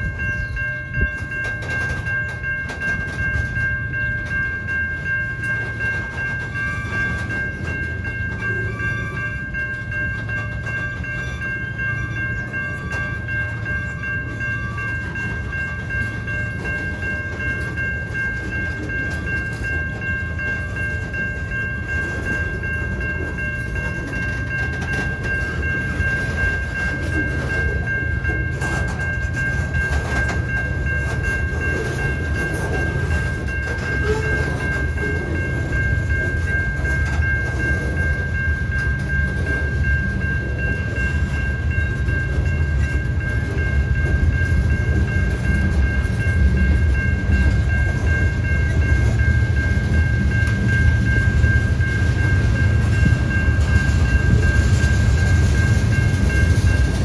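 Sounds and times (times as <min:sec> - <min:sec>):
freight train wheel rumble: 0:00.0 - 0:57.0
high ringing tone: 0:00.0 - 0:57.0
train clanks: 0:00.0 - 0:57.0.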